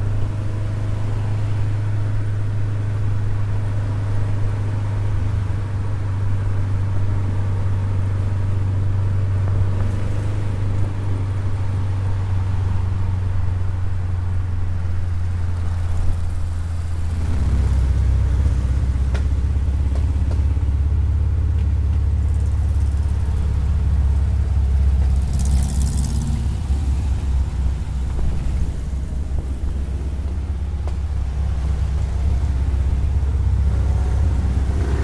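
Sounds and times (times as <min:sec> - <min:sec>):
car engine droning: 0:00.0 - 0:35.0.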